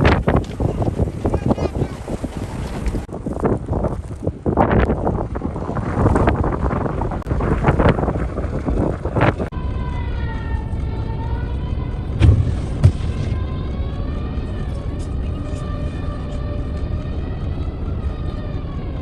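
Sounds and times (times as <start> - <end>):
blizzard wind gusting: 0.0 - 19.0
droning tone: 6.8 - 19.0
short thumps: 12.2 - 13.4.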